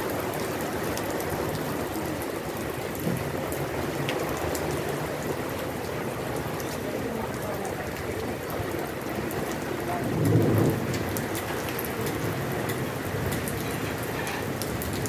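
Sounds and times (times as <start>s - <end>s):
heavy rain on paving: 0.0s - 15.0s.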